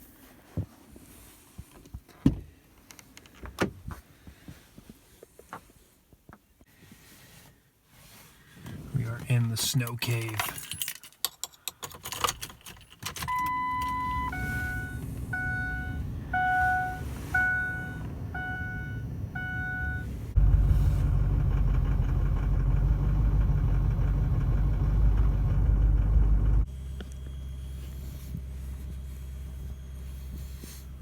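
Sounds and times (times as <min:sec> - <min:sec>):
keys jangling and clicking: 0:10.0 - 0:13.3
truck engine starting and running: 0:13.1 - 0:31.0
dashboard warning chime: 0:13.3 - 0:20.2.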